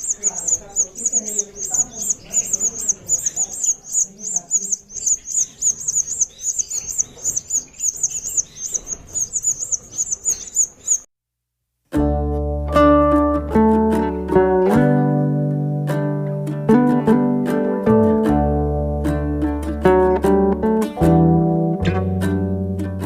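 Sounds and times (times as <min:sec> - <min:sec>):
parrot chicks begging chirps: 0:00.0 - 0:11.1
plucked-string music: 0:11.9 - 0:23.0.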